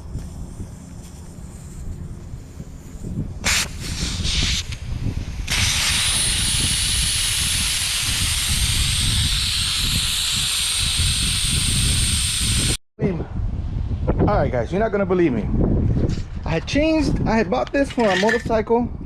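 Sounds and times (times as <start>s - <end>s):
air hissing out of tire: 3.4s - 12.8s.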